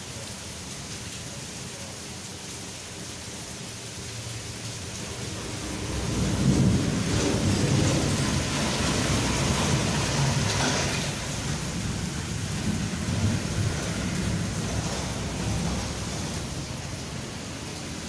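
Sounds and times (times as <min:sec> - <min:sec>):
rain falling: 0:00.0 - 0:18.0
thunder rumbling: 0:05.0 - 0:18.0.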